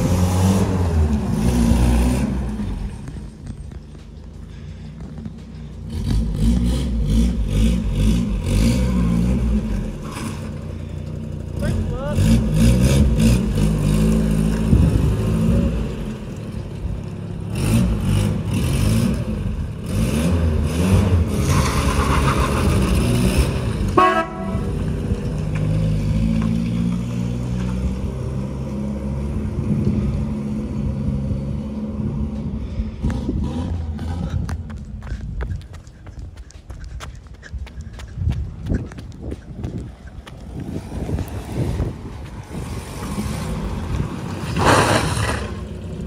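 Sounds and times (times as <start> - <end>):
car driving off: 0.0 - 46.0
car engine revving: 5.8 - 10.7, 17.4 - 31.0.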